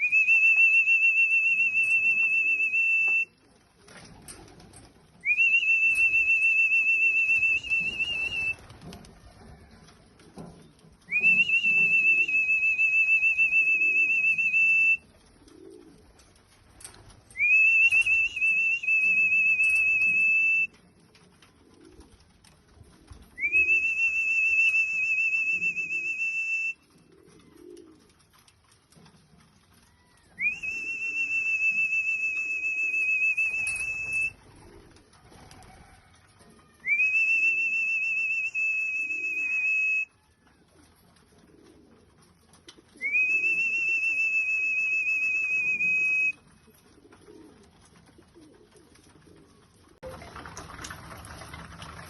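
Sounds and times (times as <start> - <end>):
pigeons cooing: 1.6 - 23.9, 26.8 - 31.8, 32.5 - 37.5, 39.0 - 44.5, 45.1 - 52.0
trilling whistle blasts: 5.3 - 8.7, 11.1 - 15.0, 17.4 - 20.7, 23.4 - 26.8, 30.4 - 34.4, 36.8 - 40.2, 43.0 - 46.4.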